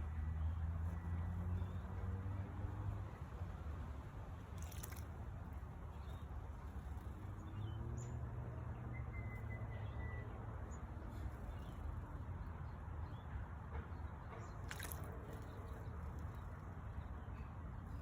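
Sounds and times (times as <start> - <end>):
small birds chirping: 0.0 - 13.3.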